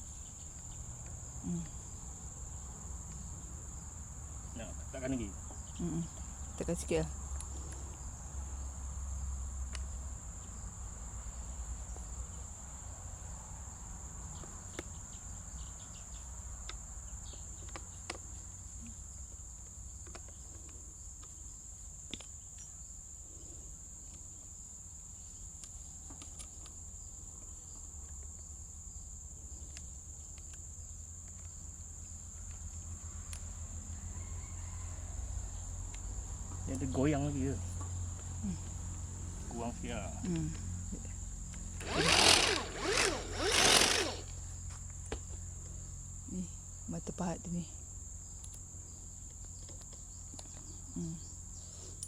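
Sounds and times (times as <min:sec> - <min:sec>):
insects chirring: 0:00.0 - 0:52.0.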